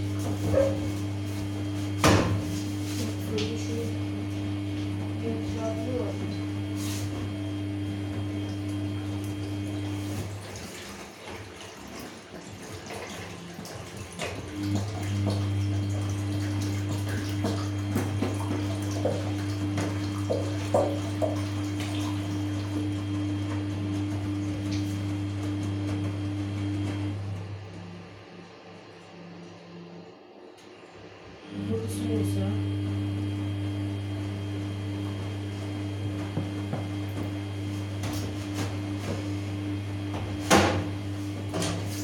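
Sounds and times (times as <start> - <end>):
washing machine hum: 0.0 - 42.0
water sloshing: 8.4 - 27.1.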